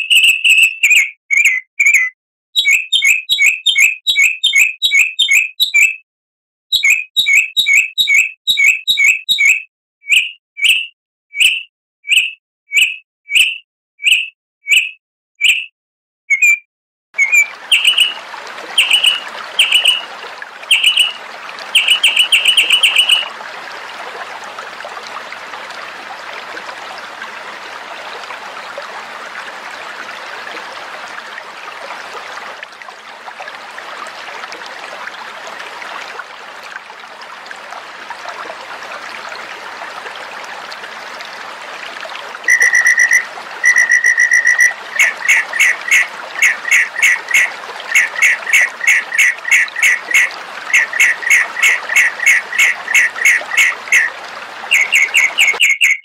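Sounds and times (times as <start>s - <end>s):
bird whistling: 0.0s - 6.0s, 6.8s - 15.7s, 16.3s - 16.6s, 17.2s - 18.2s, 18.8s - 20.0s, 20.7s - 21.2s, 21.8s - 23.3s, 42.5s - 54.1s, 54.7s - 56.0s.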